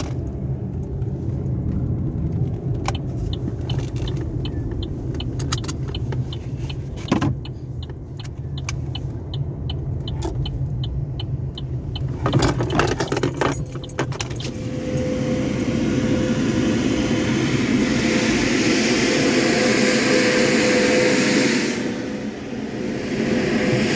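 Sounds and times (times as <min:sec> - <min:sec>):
steady ticking: 0:02.9 - 0:06.8, 0:07.4 - 0:12.1
car wash machinery rumbling: 0:12.2 - 0:23.9
rush of air or spray: 0:14.6 - 0:23.9.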